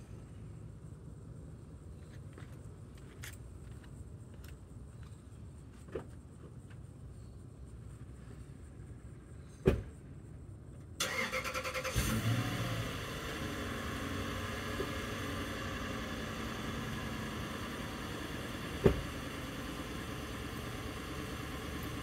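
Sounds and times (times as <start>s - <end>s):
car engine starting and idling: 11.0s - 22.0s
car door shutting: 18.8s - 19.1s.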